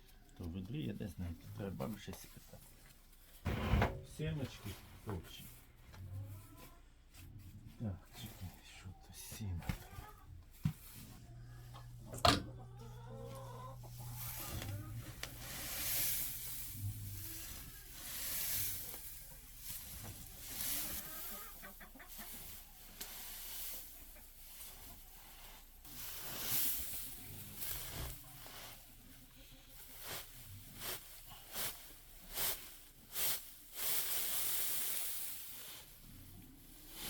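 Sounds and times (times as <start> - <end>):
rustling noise: 0.4 - 8.4, 13.9 - 37.0
chickens clucking: 5.9 - 26.5.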